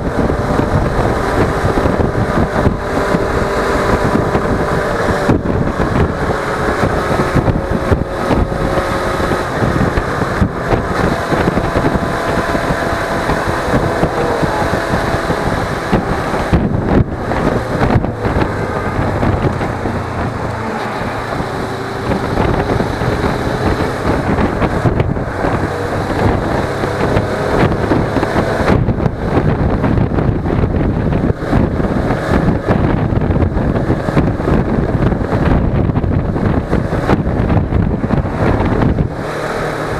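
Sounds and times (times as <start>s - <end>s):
motorcycle engine running: 0.0s - 39.9s
wind rushing on microphone: 0.0s - 39.9s.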